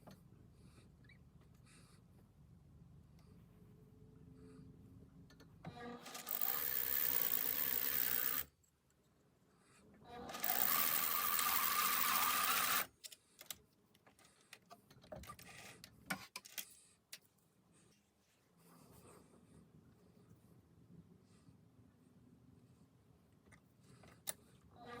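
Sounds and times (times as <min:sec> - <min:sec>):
sewing machine stitching: 0:05.7 - 0:08.5, 0:10.2 - 0:13.0.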